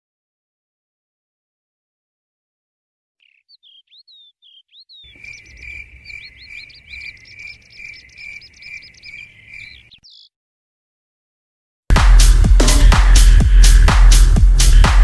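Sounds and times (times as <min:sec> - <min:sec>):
birds chirping: 0:03.2 - 0:10.4.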